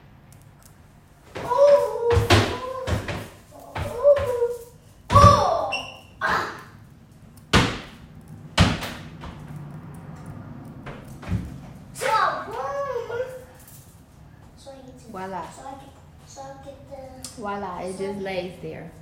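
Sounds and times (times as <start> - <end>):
sharp knocks and thumps: 7.5 - 12.0.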